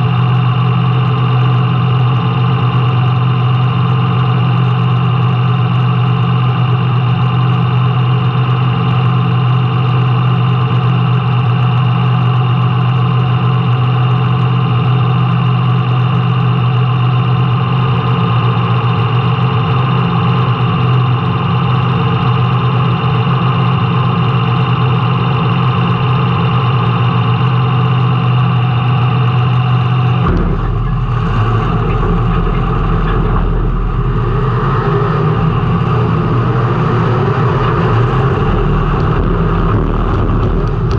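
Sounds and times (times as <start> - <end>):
race car engine running hard: 0.0 - 40.9.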